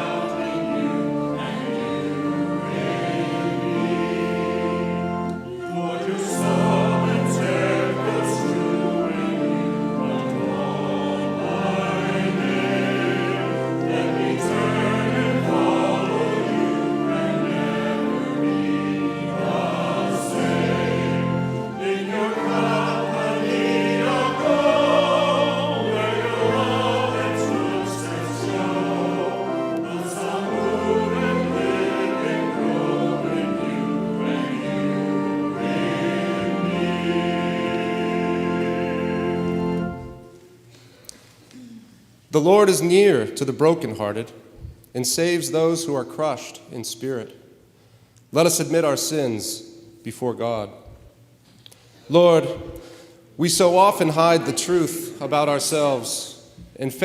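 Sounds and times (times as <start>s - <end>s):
church choir singing: 0.0s - 40.7s, 52.1s - 57.0s.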